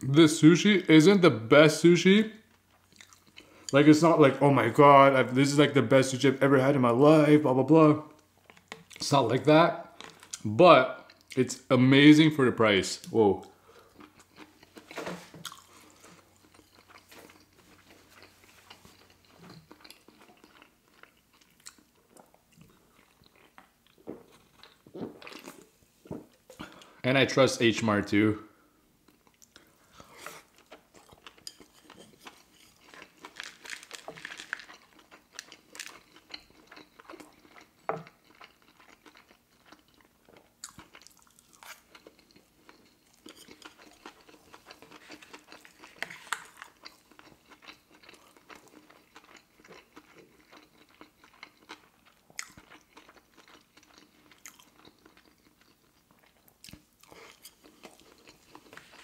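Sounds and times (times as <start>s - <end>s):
chewing with wet mouth clicks: 2.5s - 3.7s, 13.8s - 25.6s, 30.5s - 59.0s.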